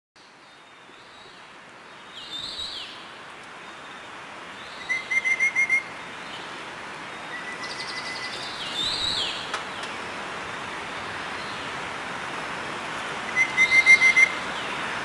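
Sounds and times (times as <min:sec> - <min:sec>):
steady outdoor hiss: 0:00.2 - 0:15.0
bird whistled call: 0:04.6 - 0:05.9, 0:13.4 - 0:14.4.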